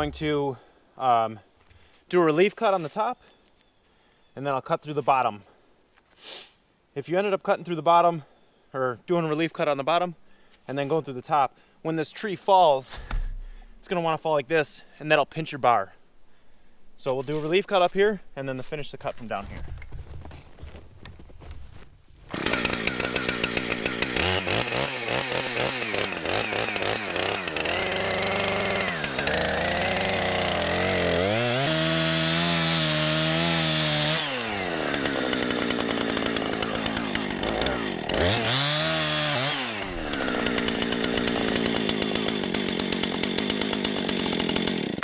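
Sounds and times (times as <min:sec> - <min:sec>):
chainsaw cutting wood: 0:22.2 - 0:45.0.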